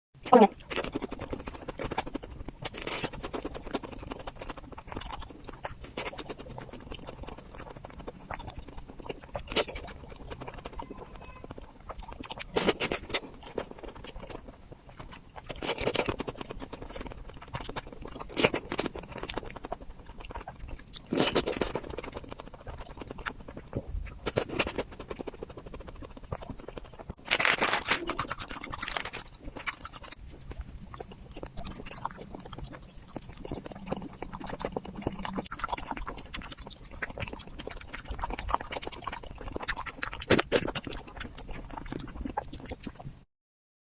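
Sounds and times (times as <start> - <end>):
chewing and wet mouth noises: 0.2 - 43.2
small mouth clicks: 27.8 - 43.2.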